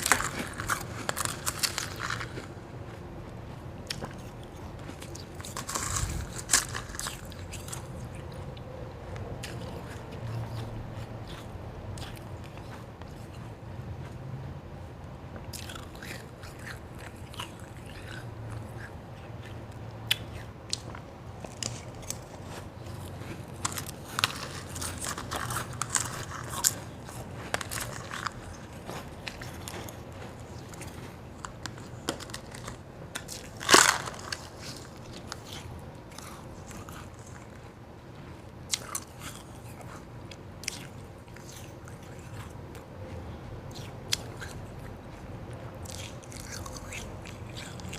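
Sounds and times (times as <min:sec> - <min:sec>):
person crunching ice: 0:00.0 - 0:08.3, 0:20.1 - 0:37.6.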